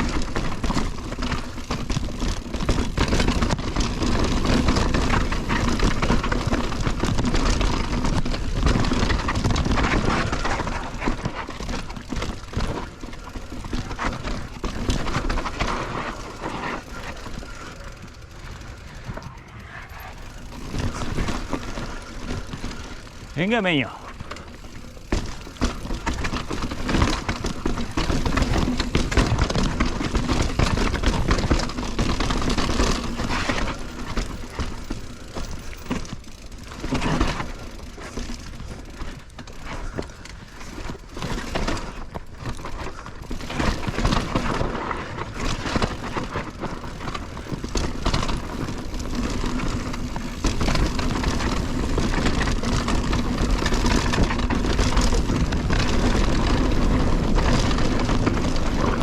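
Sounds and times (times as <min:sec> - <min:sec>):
bike rattling: 0:00.0 - 0:59.0
bike tyres rumbling on dirt: 0:00.0 - 0:59.0
wind: 0:00.0 - 0:59.0.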